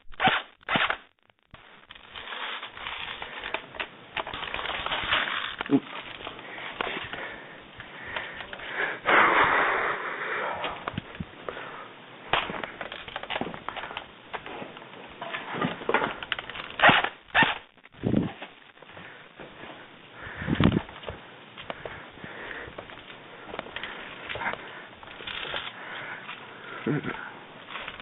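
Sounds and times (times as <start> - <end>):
loud rustling: 0.0 - 9.3.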